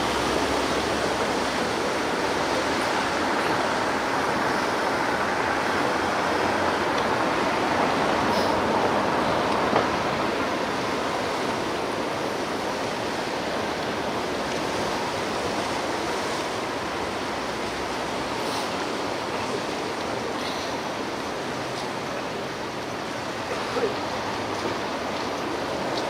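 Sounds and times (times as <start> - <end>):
waves breaking on shore: 0.0 - 26.0.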